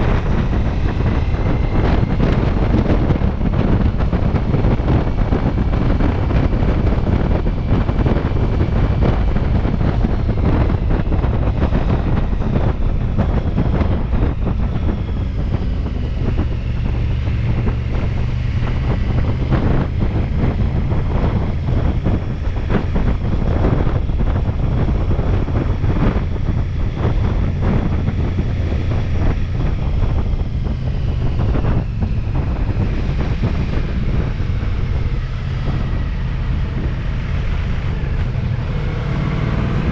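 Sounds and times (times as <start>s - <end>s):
motorcycle engine rumble: 0.0s - 39.9s
wind rushing over microphone: 0.0s - 39.9s.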